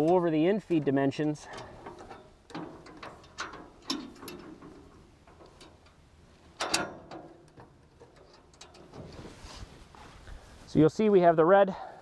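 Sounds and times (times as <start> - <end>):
metallic clicks and knocks: 0.0 - 9.2.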